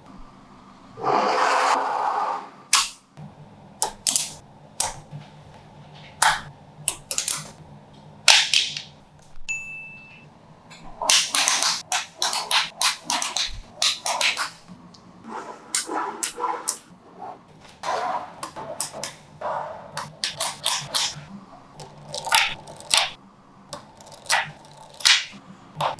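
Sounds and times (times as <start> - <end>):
magnetic balls clicking together: 6.2 - 7.5, 11.1 - 15.0, 20.0 - 21.2, 21.8 - 25.9.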